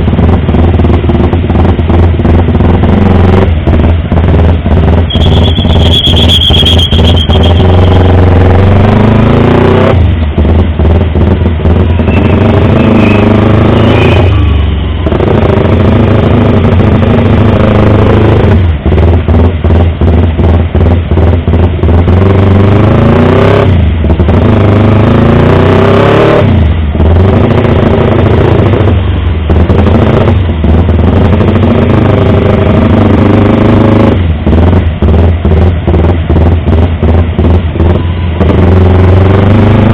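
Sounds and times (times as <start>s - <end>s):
motorcycle engine revving: 0.0s - 39.9s
brief high squeal: 5.1s - 8.1s, 12.0s - 14.7s.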